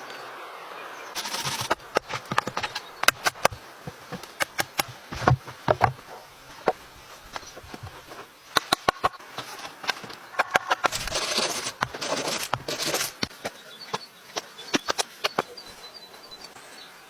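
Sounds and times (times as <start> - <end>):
quiet hiss: 0.0 - 17.0
wood knocking and clicking: 1.4 - 9.2.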